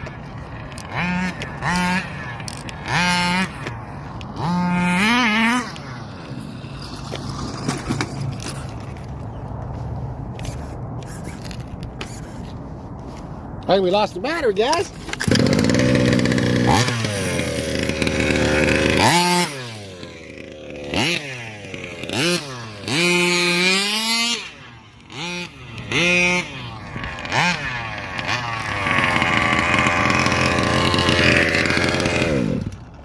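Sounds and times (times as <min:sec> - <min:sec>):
two-stroke engine revving: 0:00.8 - 0:07.8, 0:15.2 - 0:33.0.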